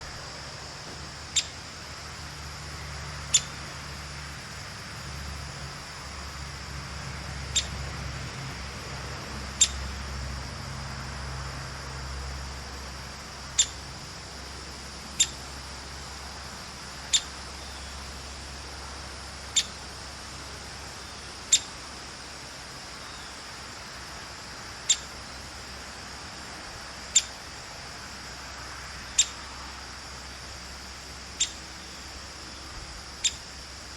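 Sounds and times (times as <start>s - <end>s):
woodpecker pik calls: 1.3s - 1.6s, 3.3s - 3.6s, 7.5s - 7.8s, 9.6s - 9.9s, 13.5s - 13.8s, 15.2s - 15.5s, 17.1s - 17.9s, 19.5s - 19.8s, 21.5s - 21.7s, 24.8s - 25.1s, 27.1s - 27.4s, 29.1s - 29.4s, 31.4s - 31.9s, 33.2s - 33.5s.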